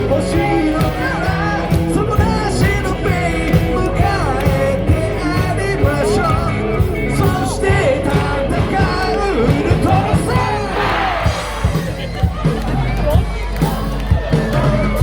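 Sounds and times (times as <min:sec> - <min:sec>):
person singing: 0:00.0 - 0:12.0
drums and bass: 0:00.0 - 0:15.0.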